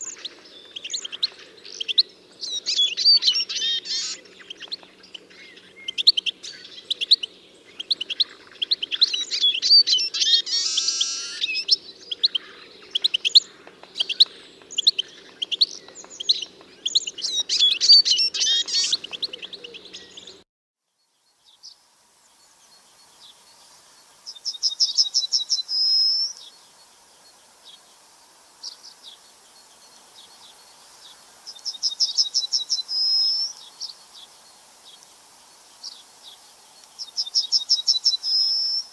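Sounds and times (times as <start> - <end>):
birds chirping: 0.0 - 20.4, 21.2 - 38.9
bird trilling: 9.3 - 11.7.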